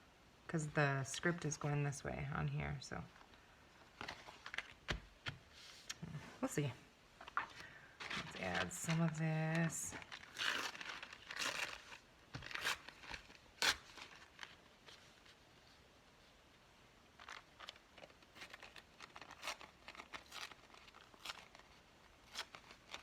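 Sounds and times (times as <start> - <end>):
paper rustling: 3.8 - 5.9, 7.2 - 15.8, 17.2 - 23.0.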